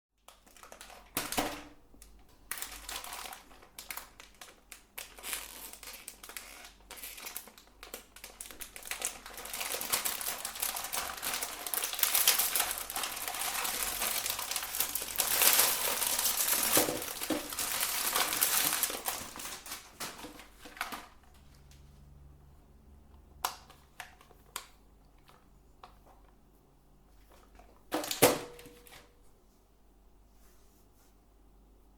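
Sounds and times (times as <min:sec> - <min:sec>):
meat grinder crunching: 0:05.0 - 0:19.6.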